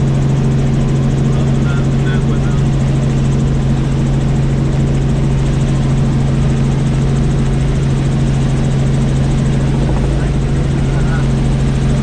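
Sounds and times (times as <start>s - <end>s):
helicopter engine and rotor: 0.0s - 12.0s.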